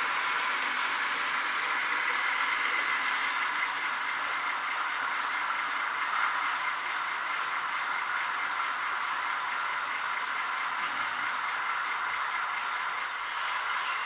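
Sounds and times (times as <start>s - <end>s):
model trains whirring and rattling: 0.0s - 14.0s.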